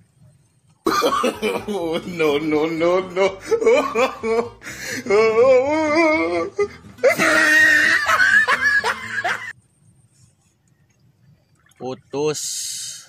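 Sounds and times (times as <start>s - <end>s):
person crying out and laughing: 0.9s - 9.5s.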